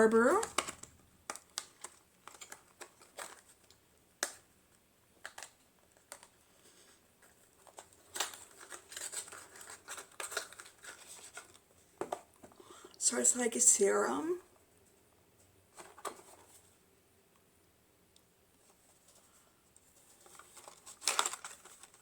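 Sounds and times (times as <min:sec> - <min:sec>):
hands handling packaging: 0:00.2 - 0:04.5, 0:05.2 - 0:12.9, 0:18.6 - 0:22.0
small clicks and crinkling: 0:00.2 - 0:12.6, 0:18.2 - 0:22.0.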